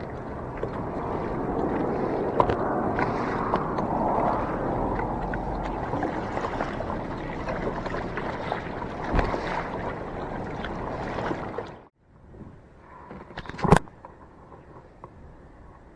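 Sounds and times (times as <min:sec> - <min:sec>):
water splashing around kayak hull: 0:00.0 - 0:11.9.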